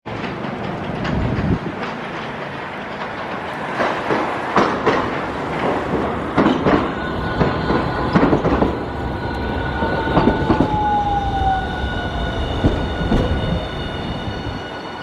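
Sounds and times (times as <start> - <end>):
streetcar running on track: 0.0 - 15.0
wheels knocking over rail joints: 0.1 - 9.1.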